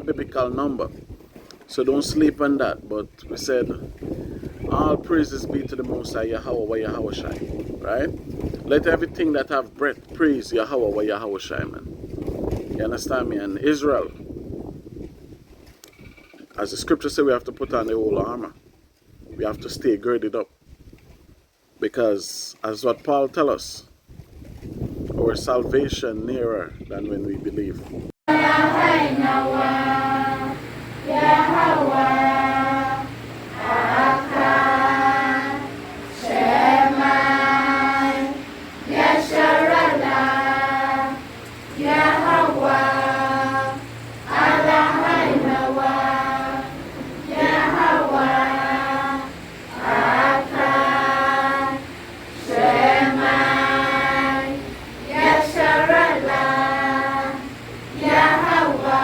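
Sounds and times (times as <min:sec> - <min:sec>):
voices singing a chant: 0:28.3 - 0:59.0.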